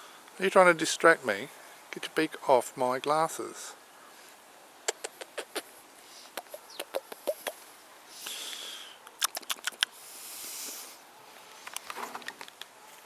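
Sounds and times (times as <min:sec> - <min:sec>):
soft hissing rush: 0:00.0 - 0:09.1, 0:09.9 - 0:13.0
parrot beak clicking: 0:04.9 - 0:05.6, 0:06.3 - 0:07.6, 0:09.1 - 0:09.9.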